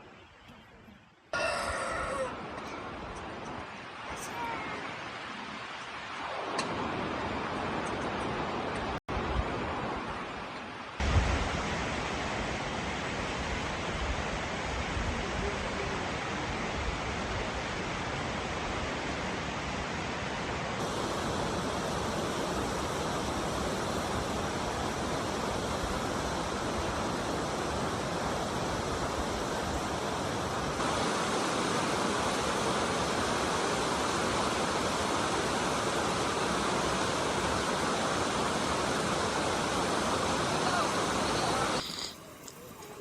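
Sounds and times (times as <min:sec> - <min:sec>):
heavy rain pouring: 0:20.8 - 0:43.0.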